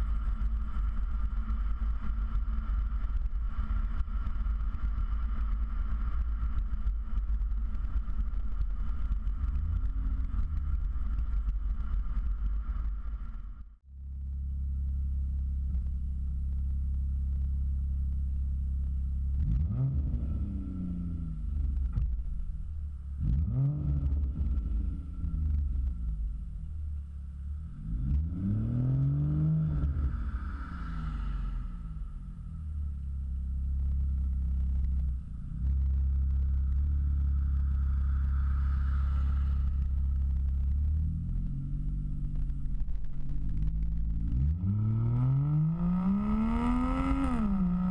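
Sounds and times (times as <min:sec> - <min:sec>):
engine revving: 0:19.3 - 0:22.0, 0:23.2 - 0:26.0, 0:27.6 - 0:32.1, 0:43.5 - 0:47.9
car engine idling: 0:29.7 - 0:44.4.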